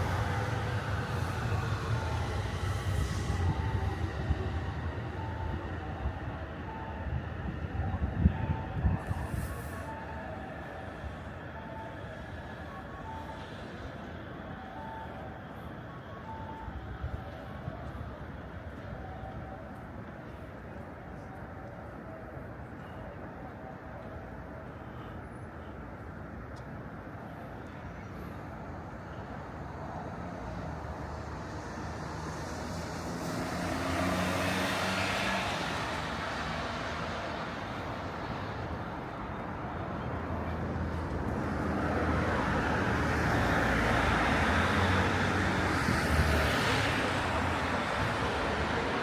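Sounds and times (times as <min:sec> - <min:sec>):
road traffic hum: 0:00.0 - 0:19.4, 0:24.4 - 0:49.0
vehicle passing: 0:32.1 - 0:37.6.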